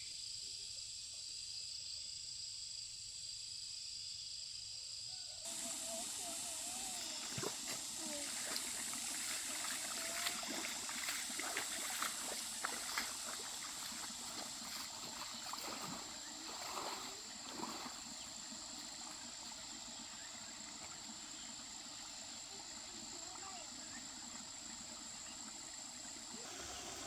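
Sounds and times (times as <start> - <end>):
water splashing and trickling: 5.5 - 27.0.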